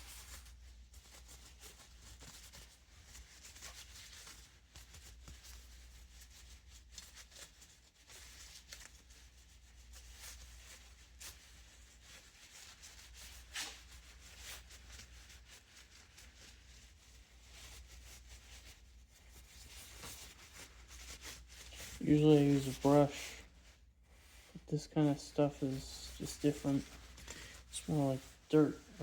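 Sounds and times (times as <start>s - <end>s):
faint rubbing: 13.5s - 29.0s
low steady hum: 21.5s - 29.0s.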